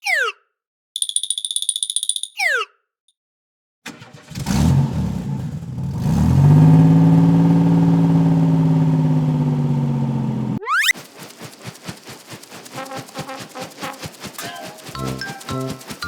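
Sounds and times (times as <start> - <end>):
car engine starting and running: 3.9 - 10.6.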